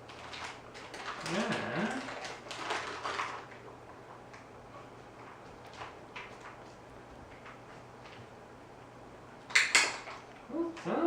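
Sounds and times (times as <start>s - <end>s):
puppy grumbling: 1.2s - 2.2s, 10.5s - 11.0s.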